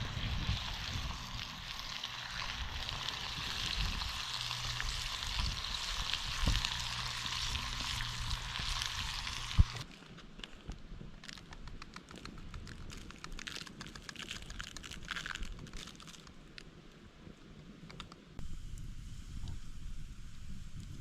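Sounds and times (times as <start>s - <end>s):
food sizzling in a pan: 0.0s - 9.8s.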